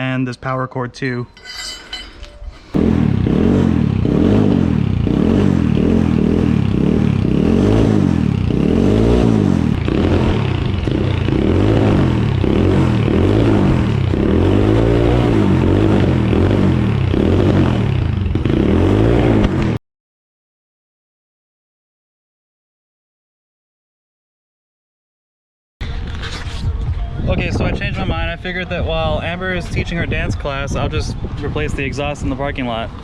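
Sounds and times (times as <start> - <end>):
dirt bike engine revving: 2.8 - 19.7.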